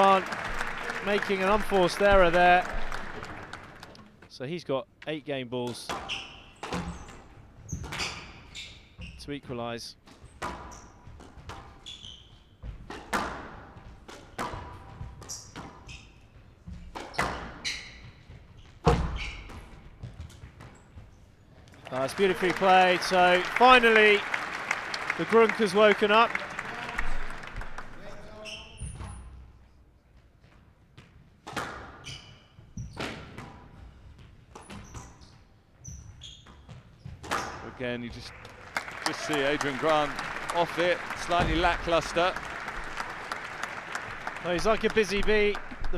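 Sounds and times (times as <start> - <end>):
shoes squeaking on court floor: 5.9 - 9.4, 10.1 - 24.5, 28.3 - 29.4, 30.4 - 38.3
squash ball hits: 12.8 - 15.8.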